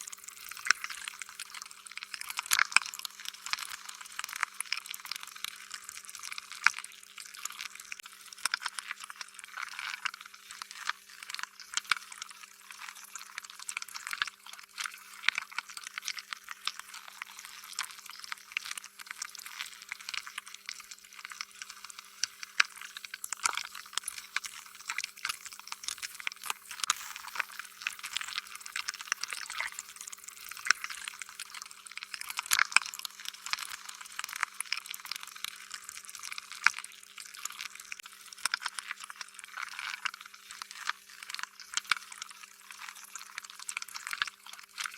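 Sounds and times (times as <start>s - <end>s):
faint steady hum: 17.0s - 32.4s
slime squelching: 19.9s - 31.7s.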